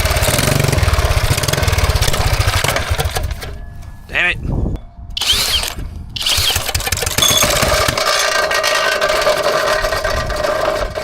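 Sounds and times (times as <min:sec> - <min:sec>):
small gas engine running: 0:00.0 - 0:03.4, 0:05.2 - 0:11.0
cordless drill spinning engine: 0:05.2 - 0:11.0.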